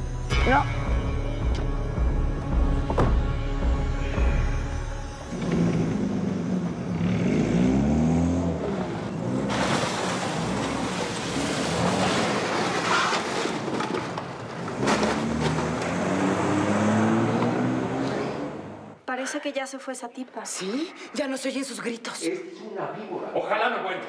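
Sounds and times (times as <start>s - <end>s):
car engine revving: 4.4s - 19.0s
car crashing into cardboard boxes: 9.4s - 15.9s.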